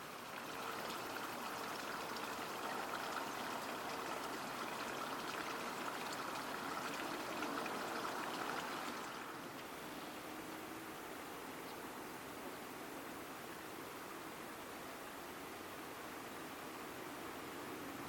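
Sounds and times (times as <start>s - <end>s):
flowing water rushing: 0.0s - 9.9s.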